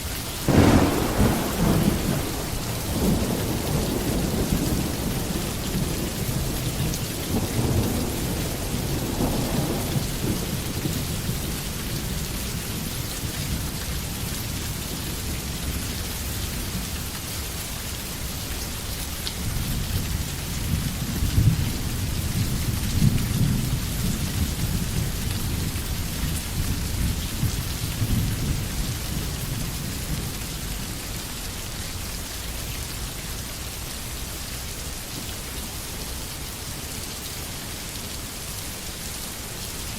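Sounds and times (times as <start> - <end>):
rain pouring: 0.0 - 39.9
thunder rumbling: 0.5 - 12.8.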